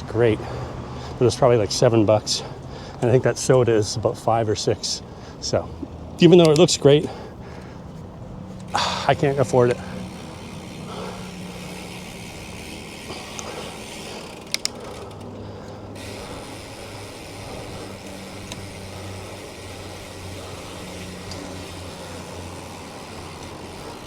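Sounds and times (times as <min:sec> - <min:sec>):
low engine hum: 0:00.0 - 0:24.0
street traffic: 0:00.0 - 0:24.0
sharp clicks: 0:14.2 - 0:15.3.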